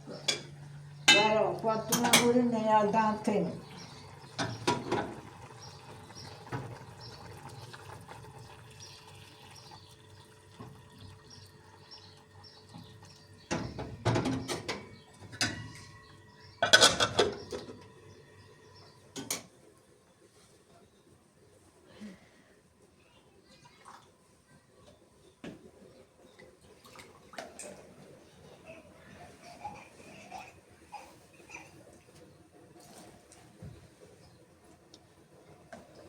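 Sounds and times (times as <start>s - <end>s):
dishes and cutlery clattering: 1.1s - 2.4s, 16.6s - 17.8s
running water: 22.9s - 36.0s.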